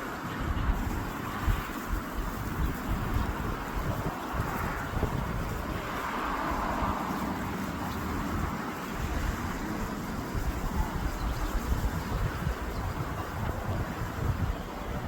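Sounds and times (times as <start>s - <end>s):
steady rushing noise: 0.0s - 15.0s
wind buffeting microphone: 0.0s - 15.0s.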